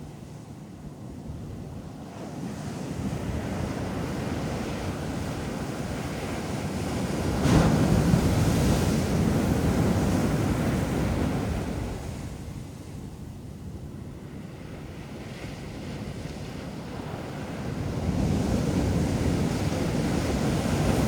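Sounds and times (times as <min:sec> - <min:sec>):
ocean surf on beach: 0:02.0 - 0:13.0, 0:14.2 - 0:21.0.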